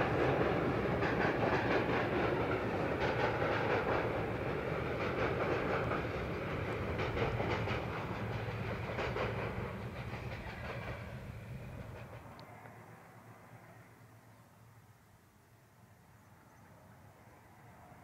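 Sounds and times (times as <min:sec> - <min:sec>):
train wheels clicking over rail joints: 0:00.0 - 0:12.4
train low rumble: 0:00.0 - 0:18.0.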